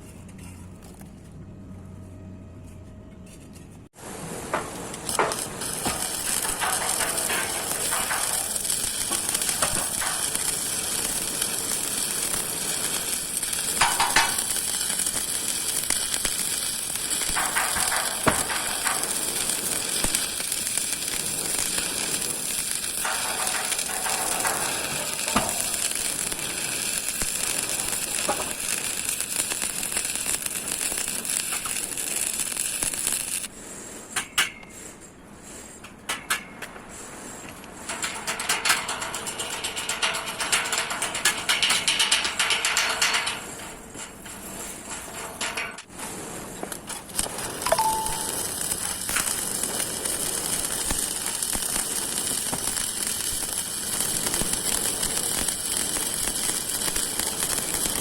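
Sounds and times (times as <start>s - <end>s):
electric arc welding crackle: 4.6s - 33.5s, 37.8s - 58.0s.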